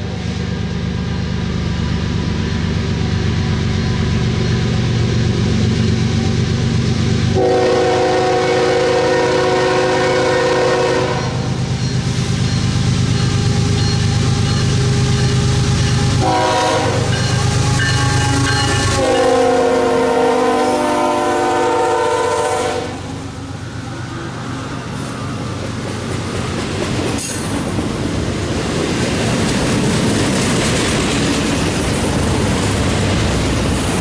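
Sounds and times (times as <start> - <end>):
diesel locomotives rumbling: 0.0 - 34.0
locomotive air horn: 7.3 - 11.6, 13.2 - 23.3.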